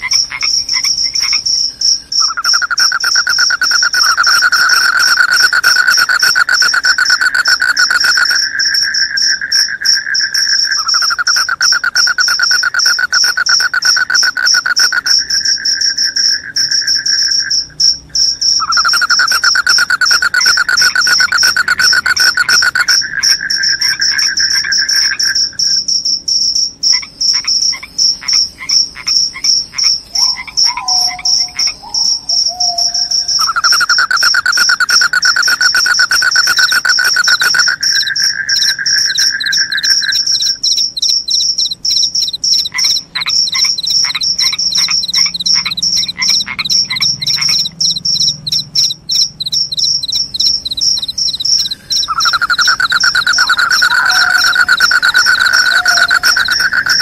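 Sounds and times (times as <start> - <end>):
crickets chirping: 0.0 - 57.0
low rapid insect trill: 0.0 - 57.0
clicking calls: 2.2 - 8.5, 10.8 - 15.4, 18.6 - 25.1, 29.8 - 57.0.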